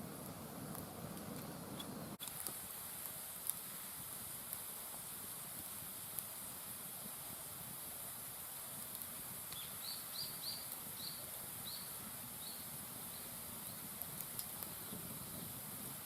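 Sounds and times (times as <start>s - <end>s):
steady hiss: 0.0s - 16.0s
wood fire crackles: 0.0s - 16.0s.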